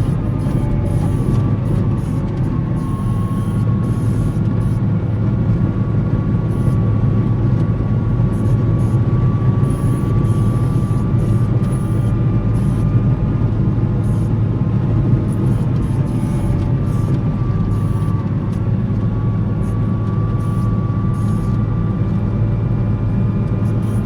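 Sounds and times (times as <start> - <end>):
diesel engine under load: 0.0 - 24.0
thin steady whine: 0.0 - 24.0.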